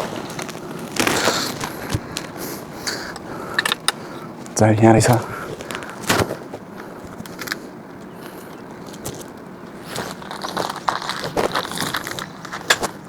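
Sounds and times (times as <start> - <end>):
packing material rustling: 0.0 - 3.6, 4.2 - 7.6, 8.3 - 13.0
small parts clicking and knocking: 1.9 - 4.0.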